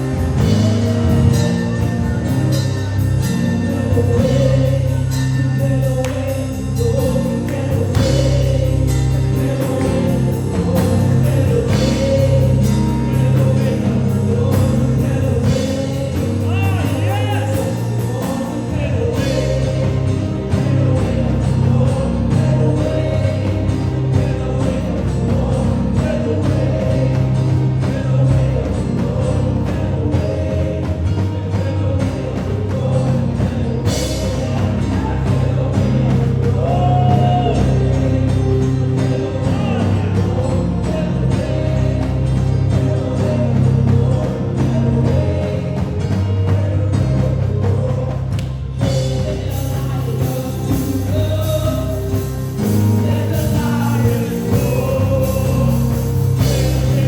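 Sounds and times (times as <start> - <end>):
gospel band playing: 0.0 - 57.0
people singing: 0.0 - 57.0.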